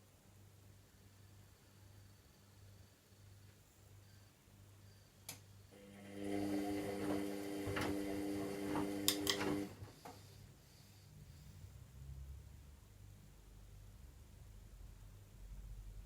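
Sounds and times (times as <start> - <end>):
washing machine motor humming: 5.7 - 9.9
washing machine clicks: 6.6 - 9.8.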